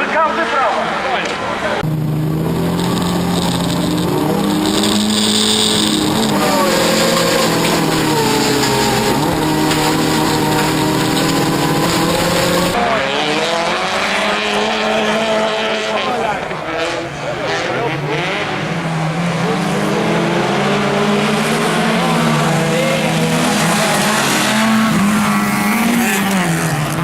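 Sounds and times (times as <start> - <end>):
car engine running hard: 0.0 - 27.0.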